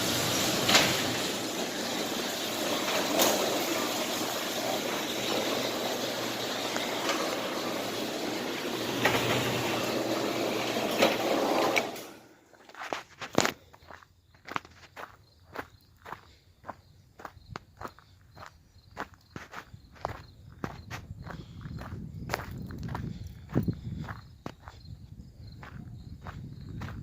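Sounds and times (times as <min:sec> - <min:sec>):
pressure washer spraying: 0:00.0 - 0:12.3
pump humming: 0:00.0 - 0:12.4.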